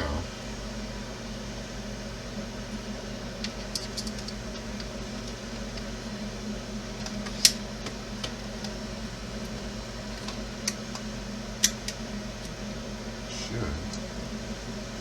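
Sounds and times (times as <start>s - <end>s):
steady low hum: 0.0s - 0.7s, 12.9s - 15.0s.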